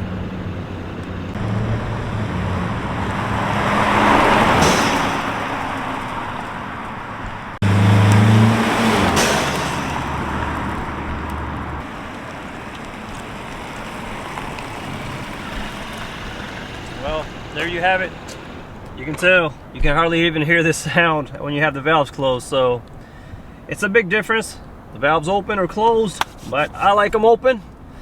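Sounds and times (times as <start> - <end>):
car passing by: 0.0 - 19.1.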